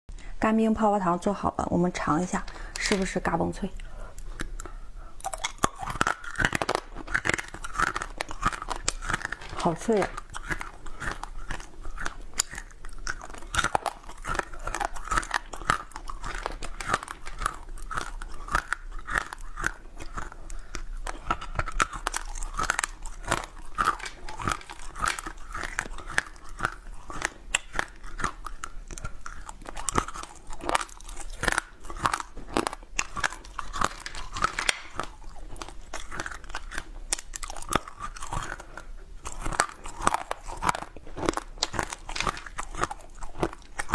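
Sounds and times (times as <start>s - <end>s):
crunching frozen treat: 2.3s - 43.9s
chewing: 3.8s - 43.9s.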